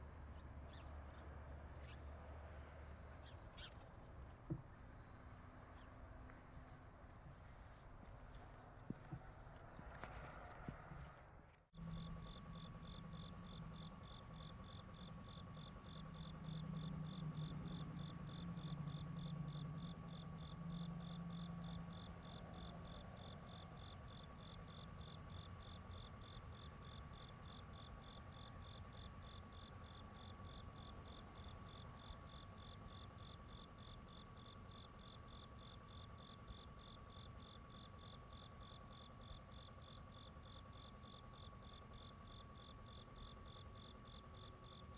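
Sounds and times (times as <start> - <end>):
crickets chirping: 11.8 - 44.9.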